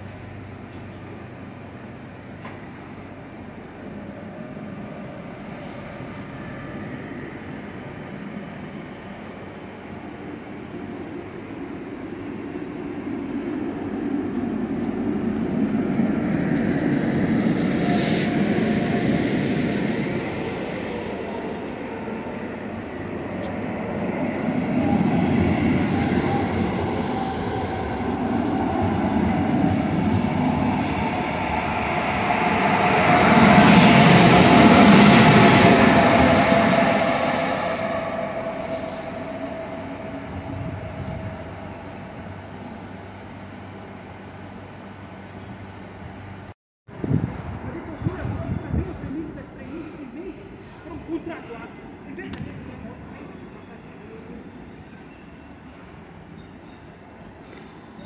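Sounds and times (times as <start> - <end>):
train wheels rumbling: 9.8 - 44.6.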